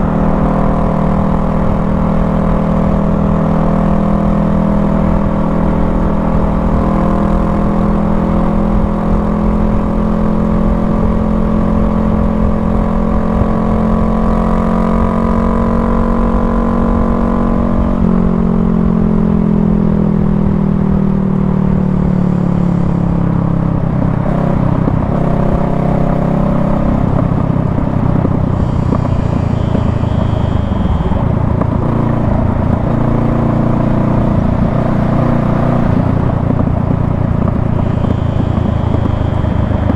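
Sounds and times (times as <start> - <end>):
motorcycle engine: 0.0 - 39.9
steady rush of noise: 27.1 - 39.9.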